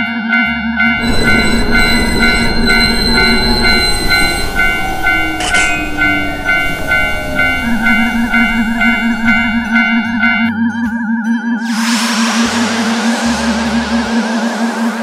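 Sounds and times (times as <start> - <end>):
railroad crossing bell dinging: 0.0 - 11.1
train rushing past: 0.8 - 10.7, 11.6 - 15.0.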